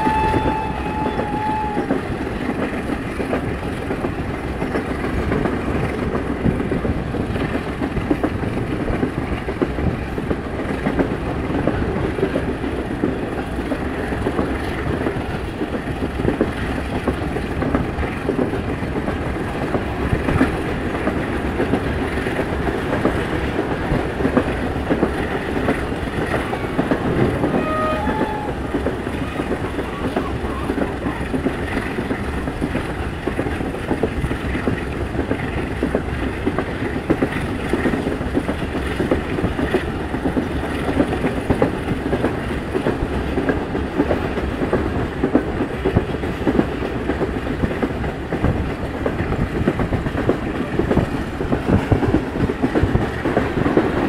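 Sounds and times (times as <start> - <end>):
train carriage rumbling rattle: 0.0 - 54.0
wheels clattering over rail joints: 0.0 - 54.0
brief tone: 27.5 - 28.6.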